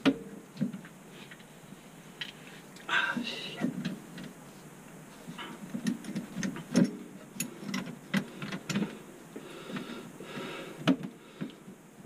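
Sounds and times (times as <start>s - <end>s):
clicks and light knocks of parts: 2.2s - 2.9s, 3.6s - 9.9s.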